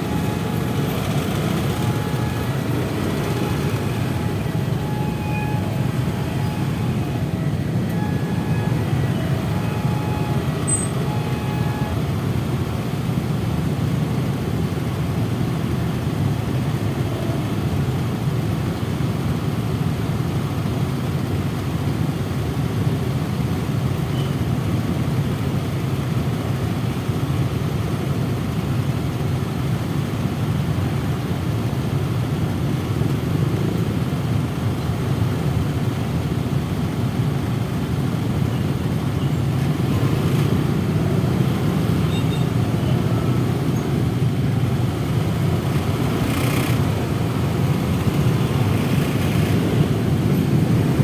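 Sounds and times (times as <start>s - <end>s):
motorcycle engine: 0.0s - 14.8s, 32.8s - 51.0s
car engines: 0.0s - 51.0s
road traffic rumble: 0.0s - 51.0s.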